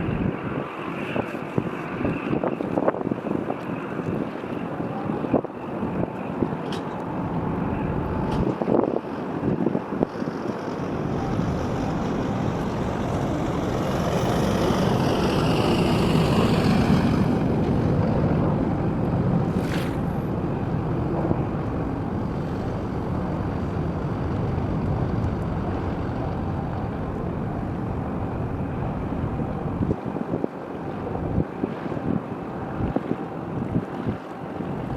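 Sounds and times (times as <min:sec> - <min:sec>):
low harbour rumble: 0:00.0 - 0:34.9
wind buffeting microphone: 0:00.0 - 0:34.9.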